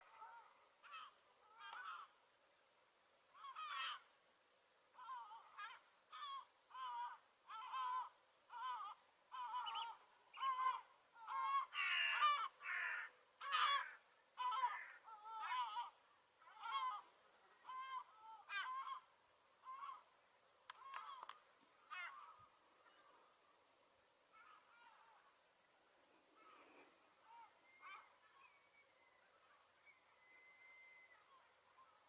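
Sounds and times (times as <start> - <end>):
gull calling: 0.1 - 2.2, 3.3 - 4.1, 4.9 - 20.1, 20.7 - 23.3, 24.3 - 25.3, 27.2 - 28.8.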